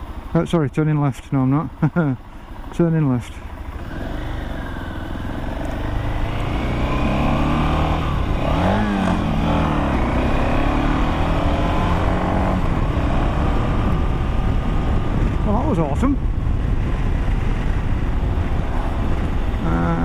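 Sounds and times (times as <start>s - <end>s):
motorcycle engine pulling away: 3.6s - 15.5s.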